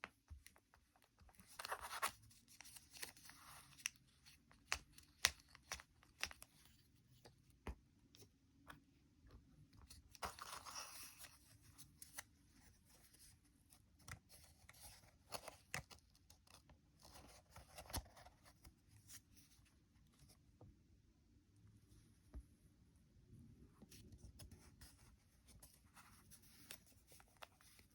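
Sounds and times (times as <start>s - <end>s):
paper folding and creasing: 0.4s - 6.8s, 9.8s - 19.6s.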